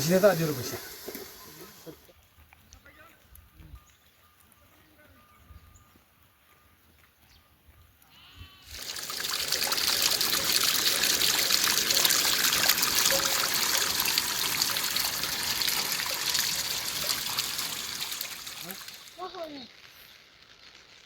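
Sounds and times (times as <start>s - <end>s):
water running: 0.0s - 2.1s, 8.7s - 19.9s.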